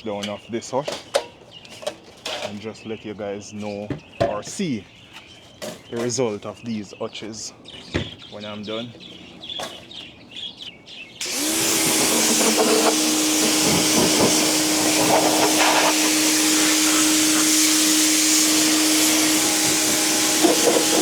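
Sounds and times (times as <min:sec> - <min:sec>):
pressure washer motor humming: 0:11.2 - 0:21.0
water jet hissing: 0:11.2 - 0:21.0.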